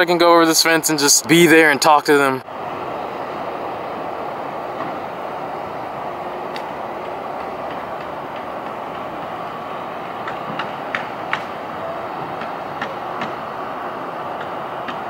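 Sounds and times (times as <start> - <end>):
steady mechanical drone: 1.8 - 15.0
sharp knocks: 10.2 - 11.6.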